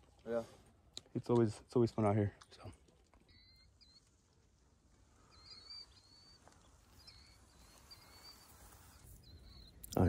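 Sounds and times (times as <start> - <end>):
high bird chirps: 3.2 - 4.3, 5.1 - 10.0.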